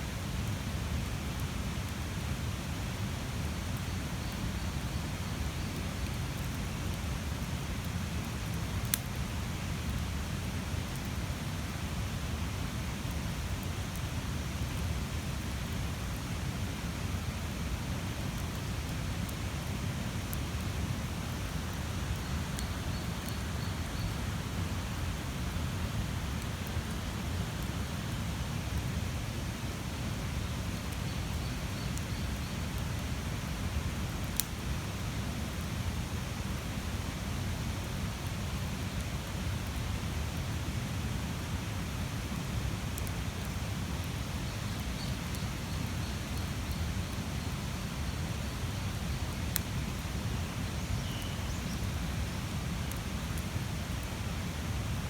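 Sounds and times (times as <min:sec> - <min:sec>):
fire crackling and popping: 0:03.6 - 0:37.2, 0:41.8 - 0:55.0
bonfire flame rushing: 0:32.7 - 0:35.0.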